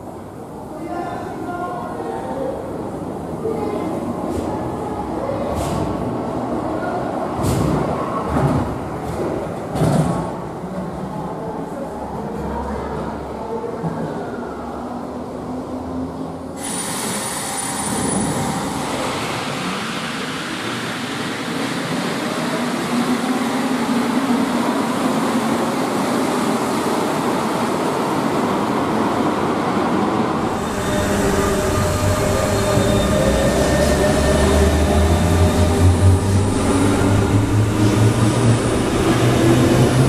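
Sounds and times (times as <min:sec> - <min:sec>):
metro train rumbling past: 0:00.0 - 0:40.0
electric train passing on open track: 0:15.2 - 0:40.0
train wheel squeal: 0:16.6 - 0:18.8, 0:30.6 - 0:36.9.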